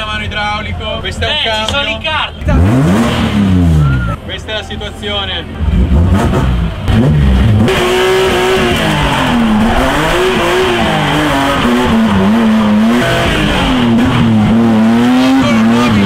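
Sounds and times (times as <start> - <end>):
car engine revving: 2.4 - 4.3, 5.4 - 16.0.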